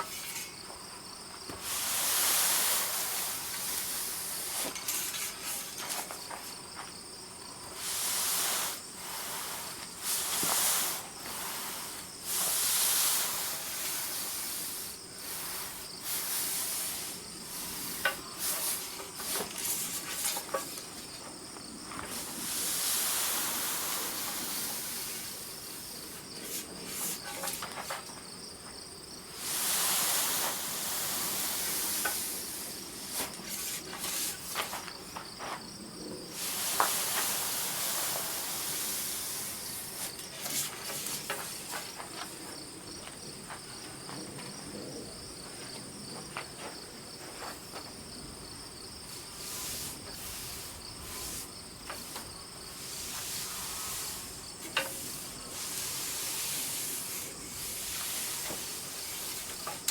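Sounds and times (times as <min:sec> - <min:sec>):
loud hiss: 0:00.0 - 0:00.7, 0:01.5 - 0:06.8, 0:07.6 - 0:28.2, 0:29.1 - 0:42.5, 0:49.0 - 0:59.9
insects trilling: 0:00.0 - 0:59.9
clicks and scrapes: 0:26.4 - 0:28.2.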